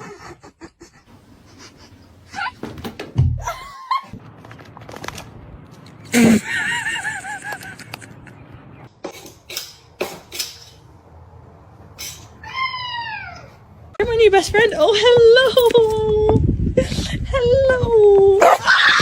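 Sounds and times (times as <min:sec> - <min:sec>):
cat meowing: 0:12.4 - 0:13.6.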